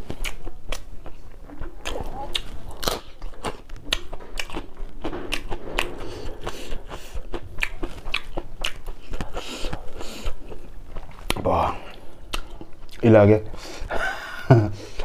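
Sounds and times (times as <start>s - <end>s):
crunching raw vegetable: 0.0s - 5.9s.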